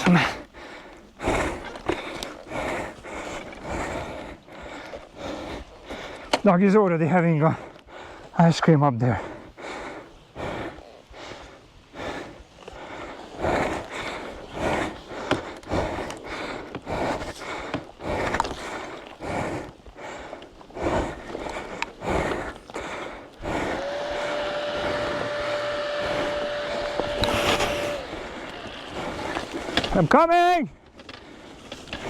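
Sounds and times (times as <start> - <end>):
person panting heavily: 0.0 - 6.4, 7.5 - 8.4, 9.0 - 29.9
steady single-tone drone: 23.6 - 29.5.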